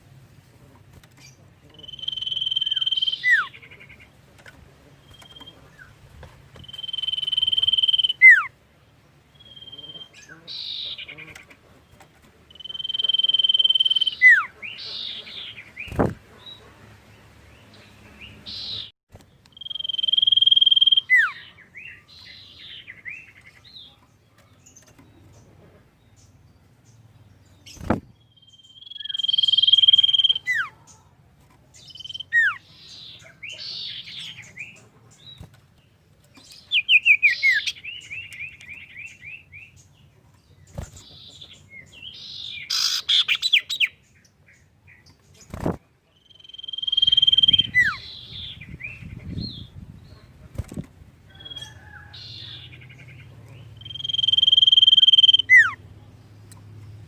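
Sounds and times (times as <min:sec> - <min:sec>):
bird chattering notes: 0:01.2 - 0:04.1, 0:06.6 - 0:08.5, 0:12.5 - 0:16.2, 0:19.5 - 0:21.5, 0:28.6 - 0:30.8, 0:42.2 - 0:44.0, 0:45.5 - 0:49.4, 0:52.3 - 0:55.8
bird whistling song: 0:01.8 - 0:03.5, 0:06.6 - 0:08.5, 0:09.4 - 0:11.1, 0:12.6 - 0:15.2, 0:19.5 - 0:21.5, 0:27.7 - 0:30.7, 0:31.9 - 0:32.6, 0:36.7 - 0:39.7, 0:41.3 - 0:44.0, 0:46.2 - 0:49.7, 0:53.8 - 0:55.8.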